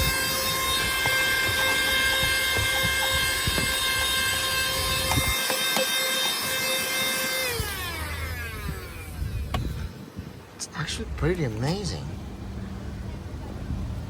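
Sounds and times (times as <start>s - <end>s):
handheld vacuum cleaner whining: 0.0s - 10.0s.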